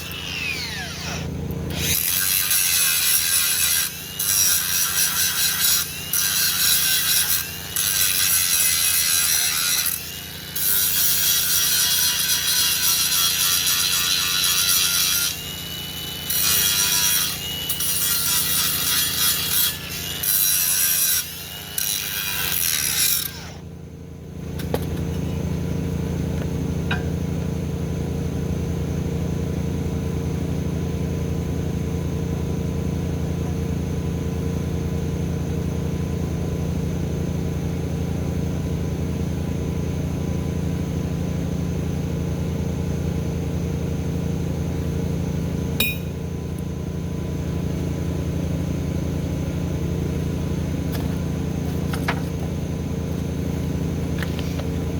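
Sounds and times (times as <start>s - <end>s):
engine running steadily: 0.0s - 2.2s, 23.2s - 54.9s
power tool cutting: 0.0s - 23.6s.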